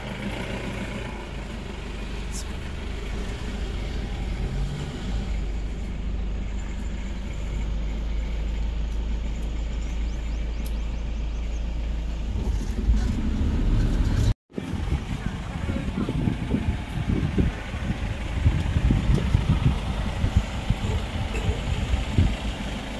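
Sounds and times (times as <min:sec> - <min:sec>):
vehicle engine and road rumble: 0:00.0 - 0:22.9.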